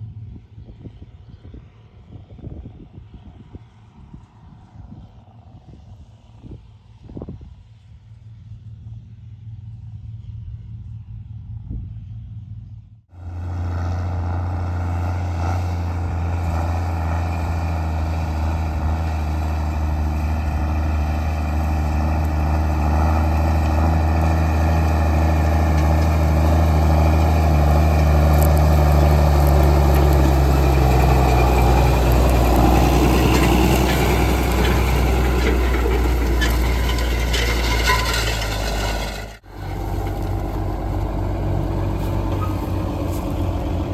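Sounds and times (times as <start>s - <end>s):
large diesel engine running: 13.2s - 43.9s.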